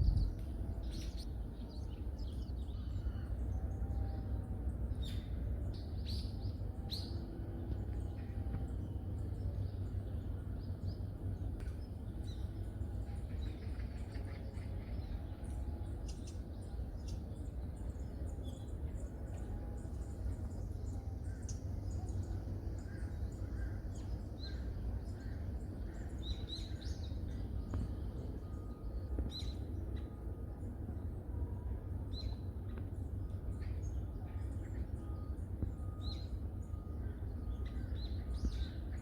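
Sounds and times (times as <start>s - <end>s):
steady low rumble: 0.0s - 39.0s.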